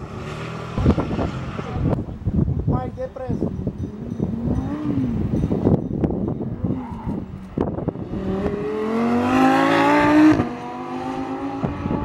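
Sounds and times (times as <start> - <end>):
sports car engine accelerating past: 6.6 - 12.0.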